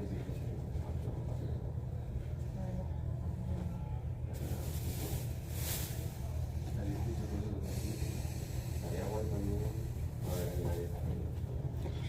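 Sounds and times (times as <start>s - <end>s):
train rumble inside carriage: 0.0s - 12.0s
hiss: 7.6s - 9.9s.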